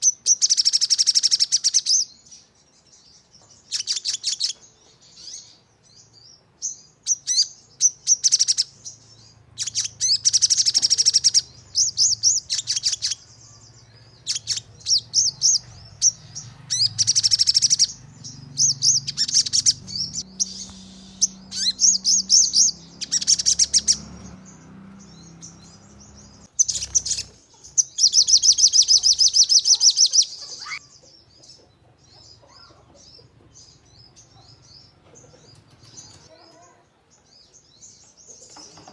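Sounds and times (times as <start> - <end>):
bird rattling high calls: 14.2 - 18.0, 18.6 - 24.4, 26.4 - 30.8.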